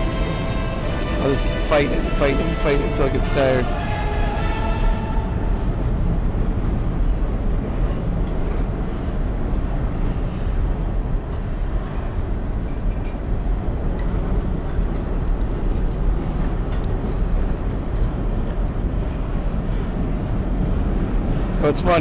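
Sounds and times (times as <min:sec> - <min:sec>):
train rumbling overhead: 0:00.0 - 0:22.0.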